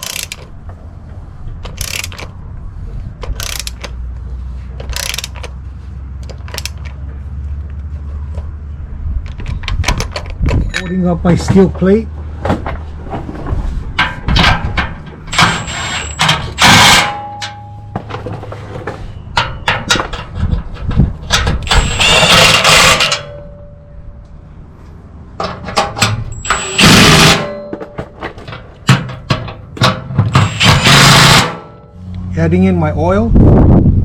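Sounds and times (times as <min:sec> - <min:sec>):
impact wrench running: 0:00.0 - 0:00.4, 0:01.8 - 0:02.2, 0:03.3 - 0:03.9, 0:04.9 - 0:05.5, 0:30.3 - 0:31.6
clicks and knocks of tools: 0:00.0 - 0:00.5, 0:01.6 - 0:02.4, 0:03.2 - 0:04.0, 0:04.8 - 0:05.6, 0:06.2 - 0:07.0, 0:09.2 - 0:11.0.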